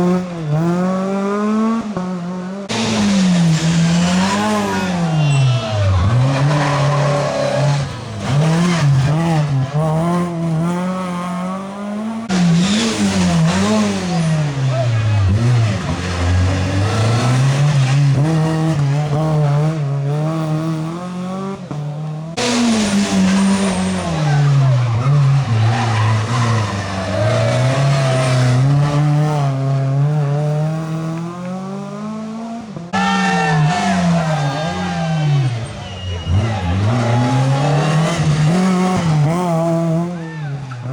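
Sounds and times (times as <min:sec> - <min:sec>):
rally car engines revving: 0:00.0 - 0:40.9.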